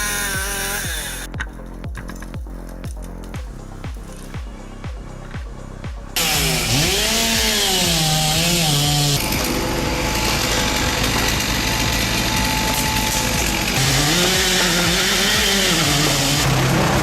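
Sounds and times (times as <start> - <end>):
chainsaw revving: 0.0 - 1.3, 6.2 - 17.0.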